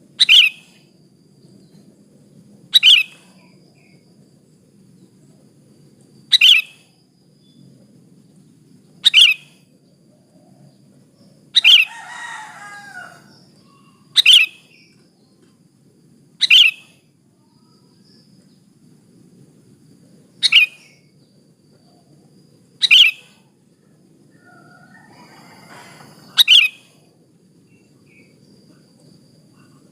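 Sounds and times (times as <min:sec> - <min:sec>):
bulbul calls: 0:00.2 - 0:00.8, 0:02.7 - 0:03.5, 0:06.3 - 0:06.8, 0:09.0 - 0:09.6, 0:11.6 - 0:12.0, 0:13.3 - 0:14.9, 0:16.4 - 0:17.0, 0:20.4 - 0:21.0, 0:22.8 - 0:23.4, 0:26.2 - 0:27.0.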